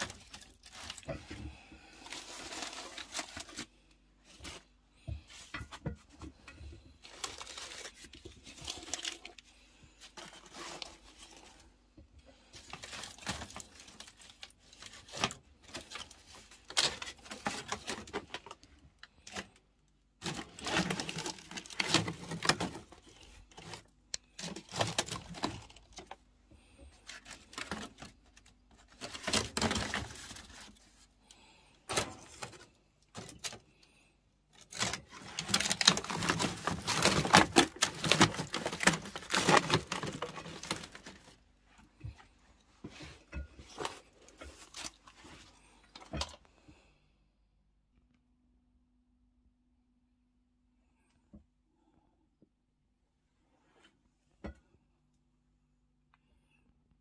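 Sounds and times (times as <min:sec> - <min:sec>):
cardboard boxes tearing and crumpling: 0:00.0 - 0:03.8, 0:20.2 - 0:23.8, 0:24.4 - 0:25.8, 0:28.8 - 0:30.8, 0:34.6 - 0:41.4.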